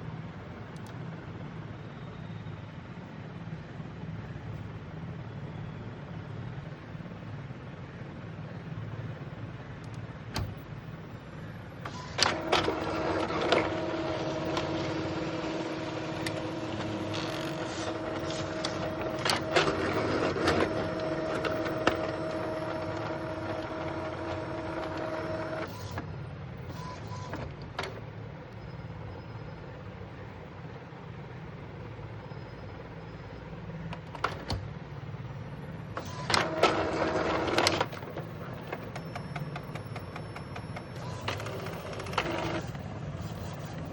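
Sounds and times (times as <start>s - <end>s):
inkjet printer running: 11.9s - 26.1s, 35.9s - 43.9s.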